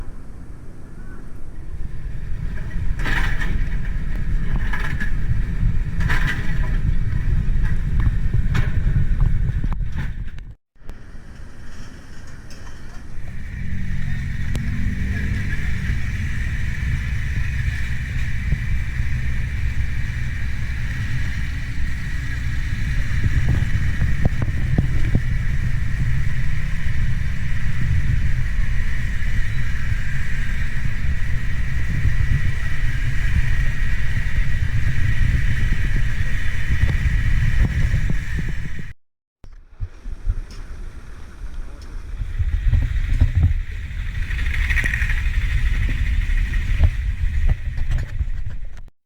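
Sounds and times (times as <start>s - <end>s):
vehicle engine rumbling: 0.0s - 49.0s
hiss-like whine: 10.9s - 38.8s.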